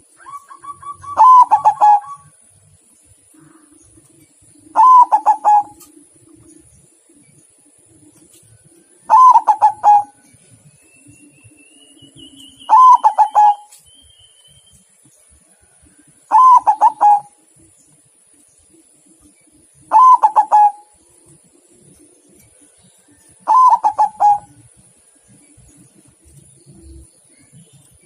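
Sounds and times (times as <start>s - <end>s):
dove cooing: 0.2s - 2.4s, 4.5s - 6.5s, 9.1s - 10.2s, 12.6s - 13.8s, 16.3s - 17.4s, 19.8s - 21.0s, 23.4s - 24.7s.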